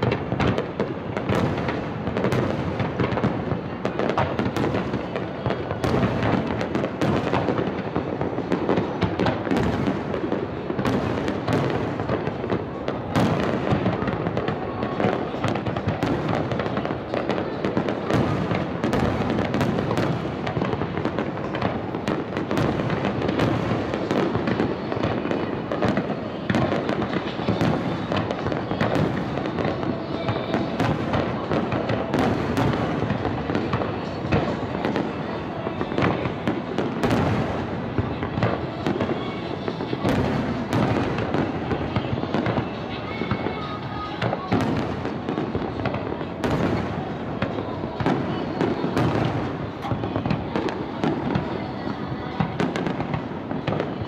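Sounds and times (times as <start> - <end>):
fireworks bursts and bangs: 0.0 - 54.0.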